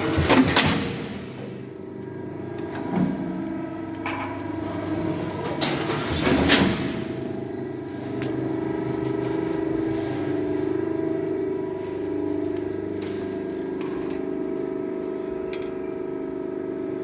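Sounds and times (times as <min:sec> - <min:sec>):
shearing machine humming: 0:06.3 - 0:17.0.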